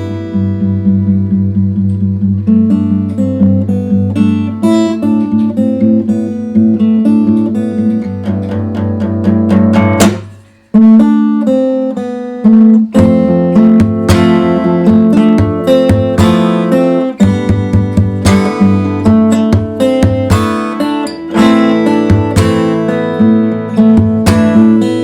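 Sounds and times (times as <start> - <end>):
fingerstyle acoustic guitar: 0.0 - 25.0
sharp guitar strike: 9.6 - 10.7, 12.9 - 25.0.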